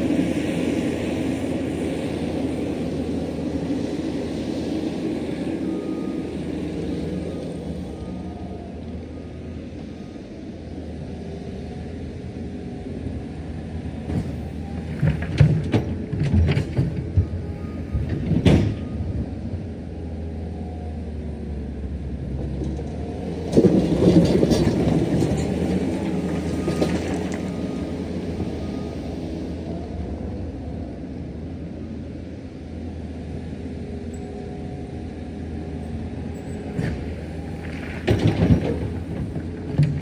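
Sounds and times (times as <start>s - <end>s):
diesel earthmoving machinery running: 0.0s - 40.0s
knocks and clanks: 37.6s - 40.0s.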